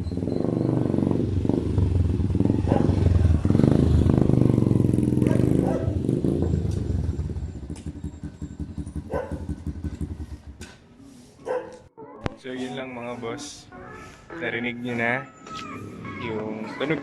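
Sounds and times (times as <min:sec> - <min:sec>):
motorcycle engine running loud: 0:00.0 - 0:10.8.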